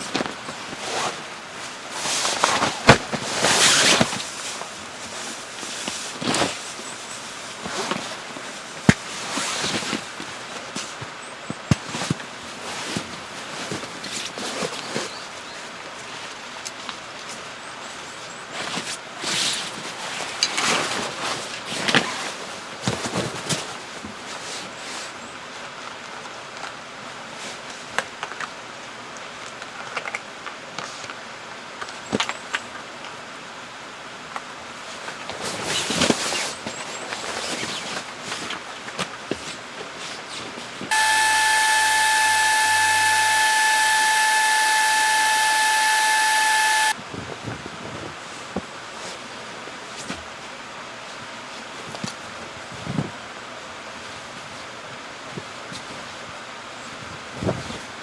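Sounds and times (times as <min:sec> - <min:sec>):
loud hiss with whistling tone: 0:40.9 - 0:47.0
sharp clicks: 0:40.9 - 0:47.0.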